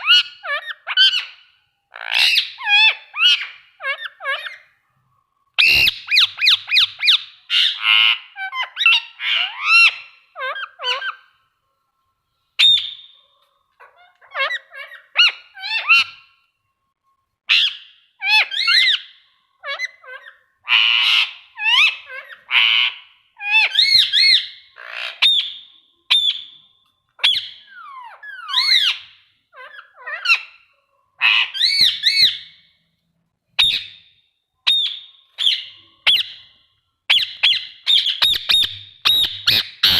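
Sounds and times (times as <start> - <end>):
parrot squawking and whistling: 2.0 - 4.7, 5.6 - 11.3, 13.8 - 16.4, 17.5 - 26.6, 31.2 - 32.6, 33.6 - 34.0, 37.1 - 39.9.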